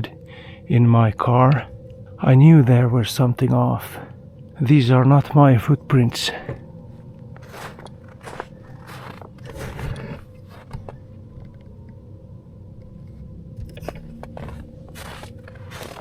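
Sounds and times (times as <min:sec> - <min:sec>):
steady low rumble: 0:00.0 - 0:16.0
footsteps crunching in snow: 0:07.3 - 0:11.0, 0:13.8 - 0:16.0.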